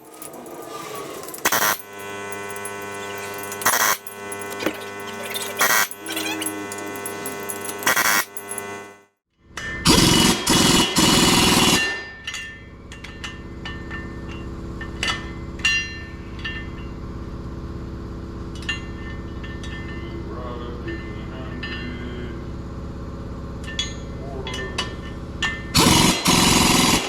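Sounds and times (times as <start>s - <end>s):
impact wrench hammering bursts: 0.0s - 9.0s, 9.6s - 12.1s, 25.4s - 27.0s
steady mechanical hum: 0.0s - 27.0s.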